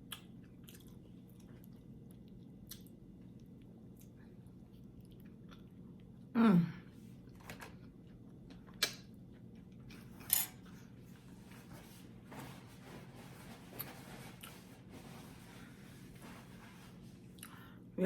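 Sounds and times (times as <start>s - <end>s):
person chewing food: 0.0s - 6.3s.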